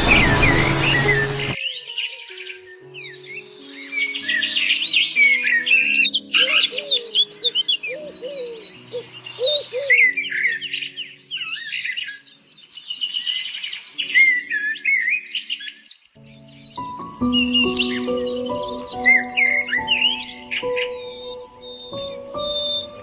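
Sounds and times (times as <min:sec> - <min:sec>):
background music with low chords: 0:00.0 - 0:01.6, 0:16.2 - 0:23.0
birds chirping and trilling: 0:00.0 - 0:23.0.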